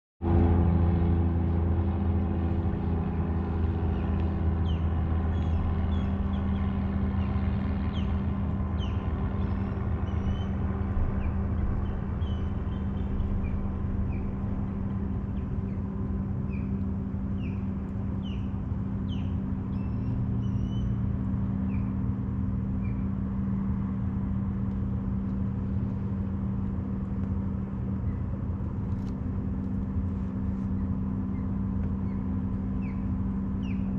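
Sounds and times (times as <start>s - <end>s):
boat motor humming: 0.2s - 33.9s
small birds chirping: 3.8s - 8.2s, 8.8s - 15.9s, 16.5s - 21.9s, 30.6s - 33.9s.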